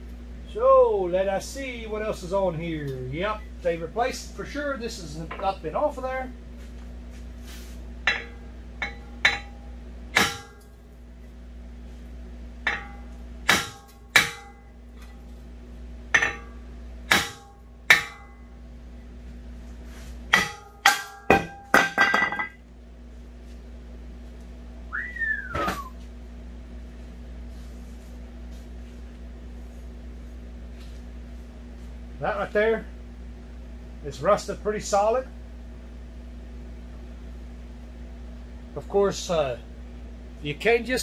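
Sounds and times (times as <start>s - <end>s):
hammer striking metal rotor: 8.0s - 10.8s, 12.6s - 15.1s, 16.1s - 18.5s, 20.3s - 22.6s.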